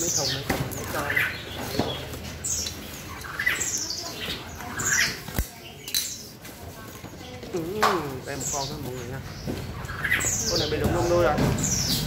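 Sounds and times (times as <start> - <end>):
caged birds chirping: 0.0 - 12.0.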